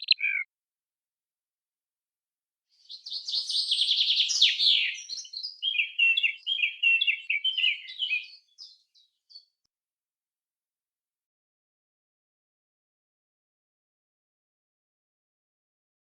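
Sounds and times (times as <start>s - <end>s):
songbird singing: 0.0s - 0.5s, 2.8s - 9.6s.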